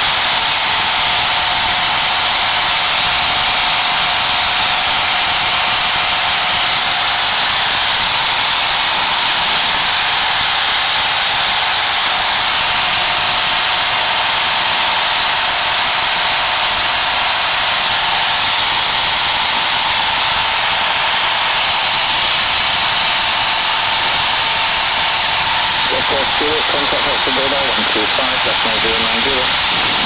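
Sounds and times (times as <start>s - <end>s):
aircraft engine noise: 23.2s - 30.0s
static hiss on intercom: 25.6s - 30.0s.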